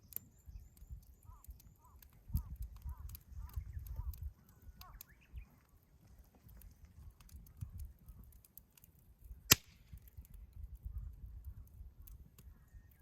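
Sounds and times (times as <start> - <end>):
wood fire crackling: 0.0 - 13.0
loud sharp fire pop: 9.5 - 10.0.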